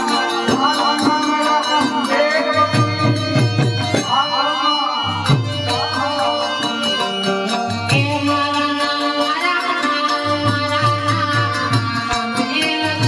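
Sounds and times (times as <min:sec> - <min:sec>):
hand drums: 0:00.0 - 0:13.0.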